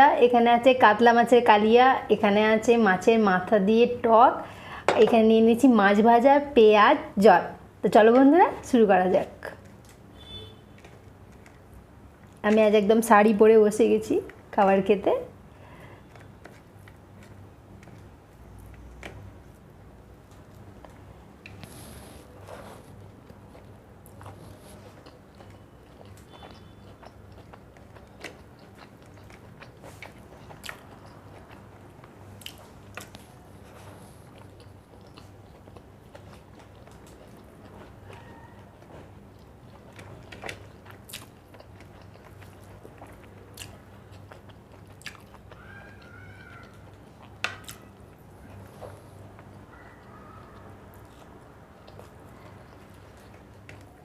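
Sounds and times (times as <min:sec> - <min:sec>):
person chewing: 0:20.3 - 0:54.0.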